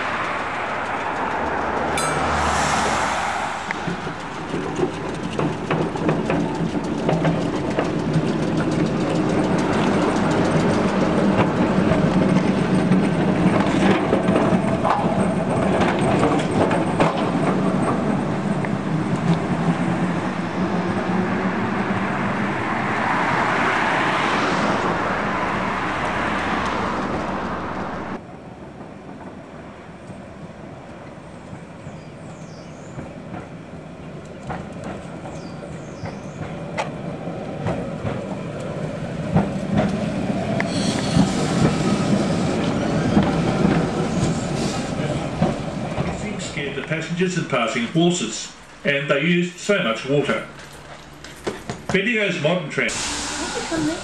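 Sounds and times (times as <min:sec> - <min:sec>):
tram wheels clicking over track: 0:00.0 - 0:02.9, 0:03.5 - 0:21.0, 0:32.3 - 0:48.9
electric tram humming: 0:00.0 - 0:54.0.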